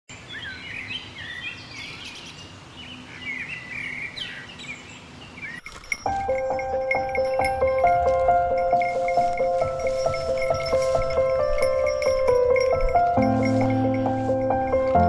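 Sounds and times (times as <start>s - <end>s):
birds chirping and warbling: 0.1s - 15.0s
piano background music: 6.0s - 15.0s.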